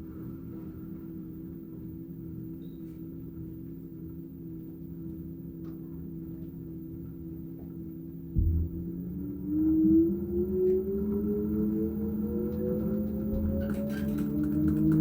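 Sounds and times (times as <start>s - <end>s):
washing machine spinning hum: 0.0s - 15.0s
low thump: 8.4s - 9.1s.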